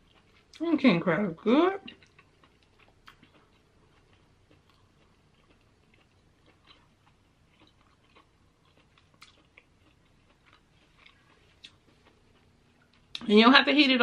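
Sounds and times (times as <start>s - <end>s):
person chewing: 0.0s - 0.6s, 1.9s - 13.2s.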